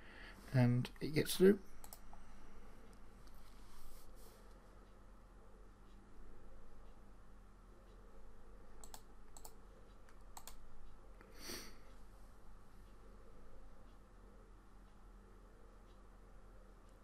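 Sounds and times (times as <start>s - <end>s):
soft hiss: 0.0s - 7.1s
low steady hum: 0.0s - 17.0s
sharp computer clicks: 1.8s - 2.2s, 8.8s - 10.7s.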